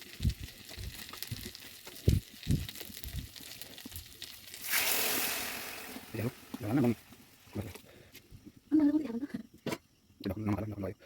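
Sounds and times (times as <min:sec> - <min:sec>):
hot oil sizzling: 0:00.0 - 0:08.2.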